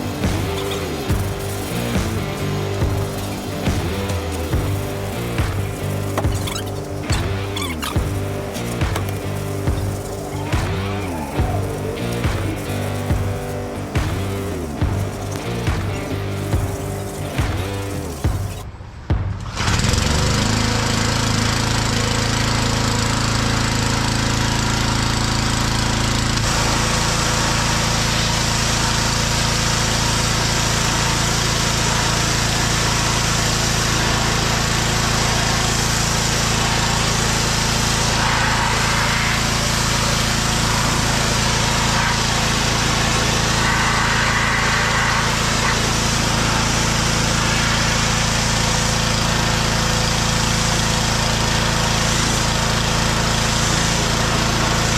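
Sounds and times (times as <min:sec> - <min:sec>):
continuous hiss: 0:00.0 - 0:18.6
small gasoline engine running: 0:00.0 - 0:18.6, 0:19.5 - 0:54.9.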